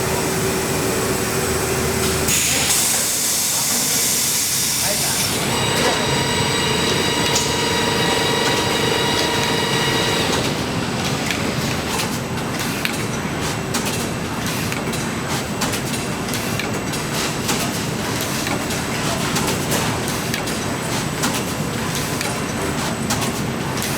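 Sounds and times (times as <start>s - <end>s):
machine whine: 0.0s - 12.0s.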